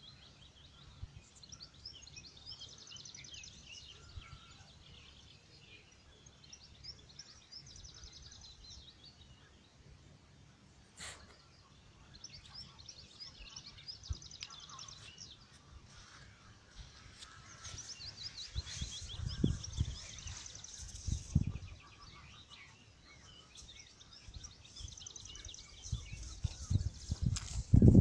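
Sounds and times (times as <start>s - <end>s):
background hiss: 4.7s - 26.3s
small birds trilling: 11.0s - 28.0s.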